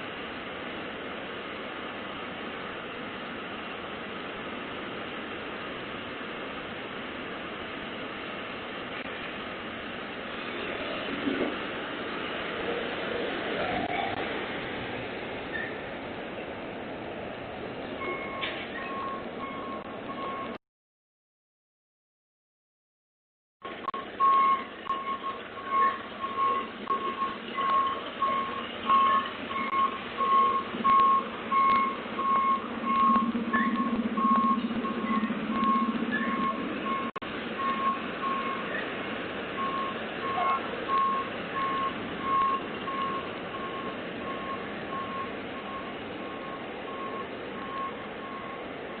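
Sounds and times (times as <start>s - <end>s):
diesel engine running: 0.0s - 20.6s, 23.6s - 49.0s
truck backup alarm beeping: 18.0s - 20.6s, 23.6s - 38.9s, 39.5s - 48.8s.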